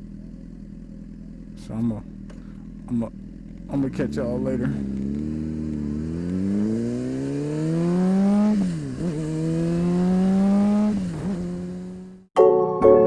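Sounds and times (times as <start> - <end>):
motorcycle engine accelerating: 0.0 - 12.3.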